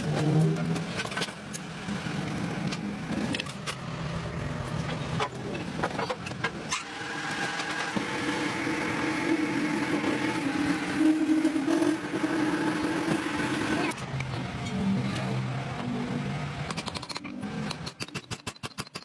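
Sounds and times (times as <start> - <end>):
motor humming: 6.6 - 16.4.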